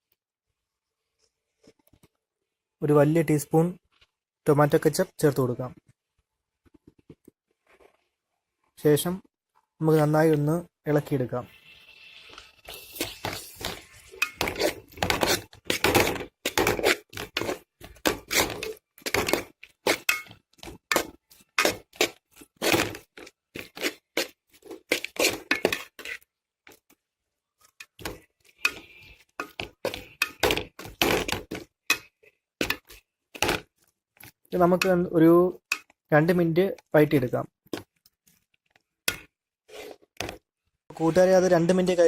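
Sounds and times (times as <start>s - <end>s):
spoon scraping and knocking pan: 11.5s - 27.0s, 27.6s - 36.1s, 37.6s - 40.5s.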